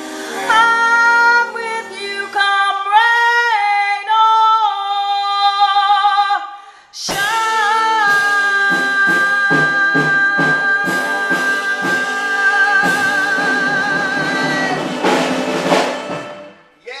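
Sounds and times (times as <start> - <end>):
cymbal crash: 0.0 - 2.4
big band playing: 0.0 - 3.8, 7.1 - 16.9.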